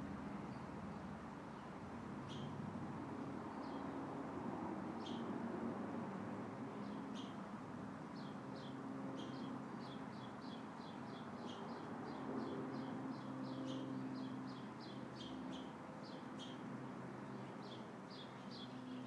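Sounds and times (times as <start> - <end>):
small bird chirping: 2.3 - 2.5.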